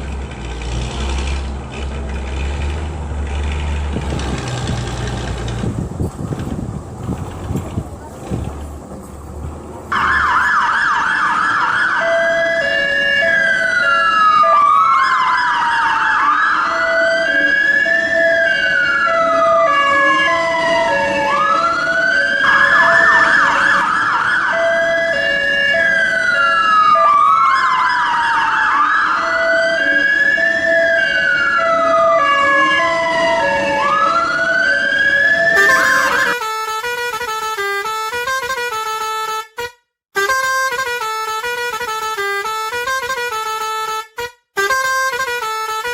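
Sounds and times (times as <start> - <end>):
emergency siren wailing and yelping: 9.9 - 36.8
low two-note beeps: 35.6 - 36.4.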